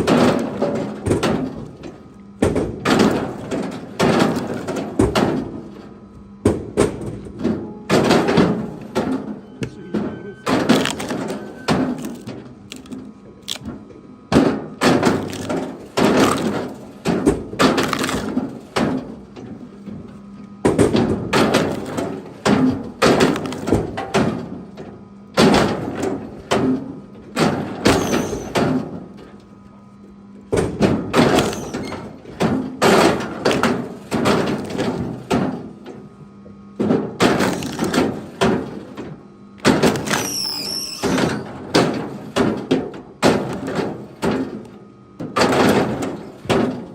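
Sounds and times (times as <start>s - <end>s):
firewood chunks knocking together: 0.0s - 5.5s, 10.5s - 19.1s, 20.7s - 24.5s, 30.5s - 35.8s, 36.8s - 40.5s, 41.7s - 46.9s.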